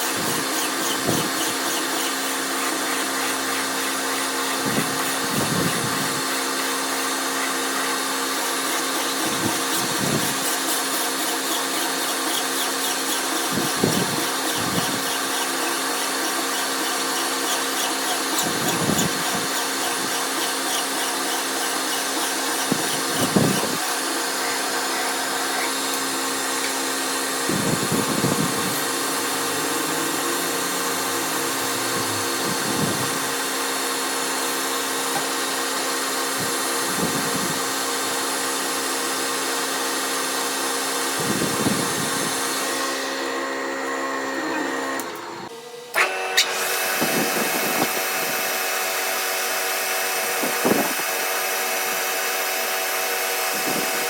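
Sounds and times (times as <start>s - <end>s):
machine humming: 0.0s - 35.6s
deep machine bursts: 23.0s - 33.8s.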